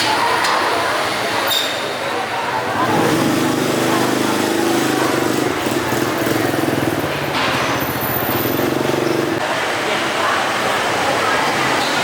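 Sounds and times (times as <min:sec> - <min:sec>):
engine running: 0:02.7 - 0:09.4.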